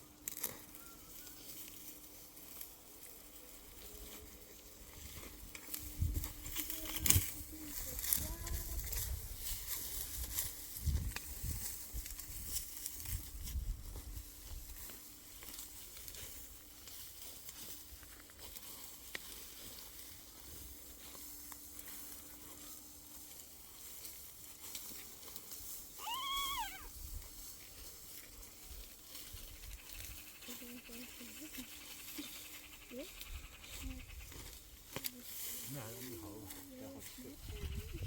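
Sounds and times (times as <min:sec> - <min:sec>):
faint rustling and scraping: 0:00.0 - 0:38.0
high animal call: 0:26.0 - 0:27.0.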